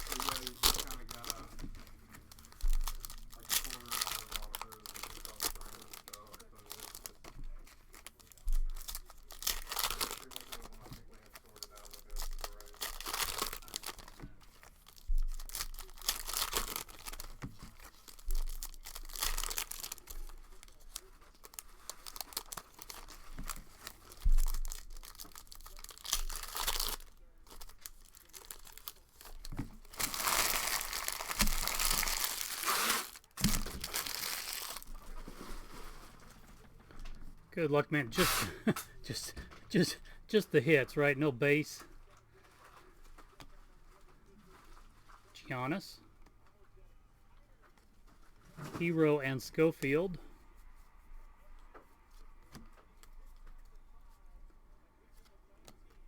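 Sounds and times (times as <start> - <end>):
wrappers tearing and crinkling: 0.0 - 36.4.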